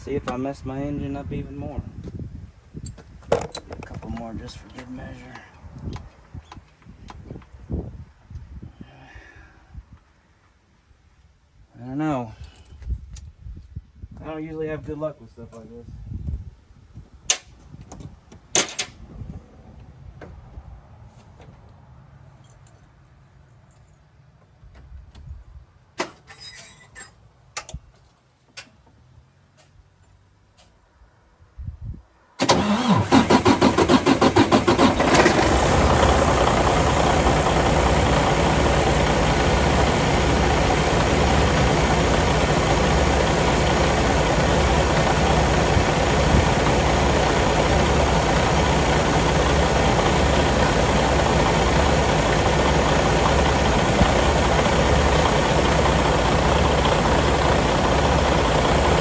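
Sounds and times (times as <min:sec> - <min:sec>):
diesel engine cranking: 0:32.4 - 0:59.0
diesel engine idling: 0:32.5 - 0:59.0.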